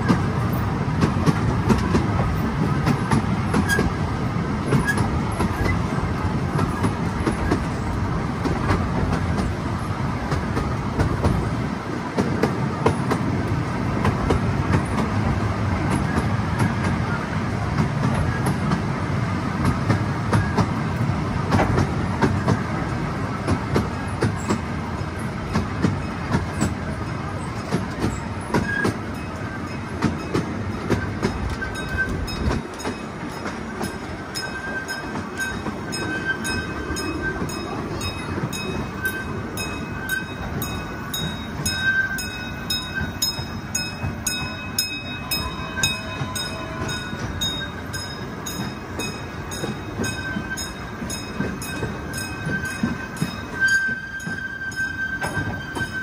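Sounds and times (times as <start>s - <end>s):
small train wheels rumbling: 0.0s - 56.0s
wheels clicking over rails: 0.0s - 56.0s
faint wheel squeals: 26.0s - 29.9s, 33.6s - 40.4s, 41.2s - 43.6s, 51.5s - 56.0s.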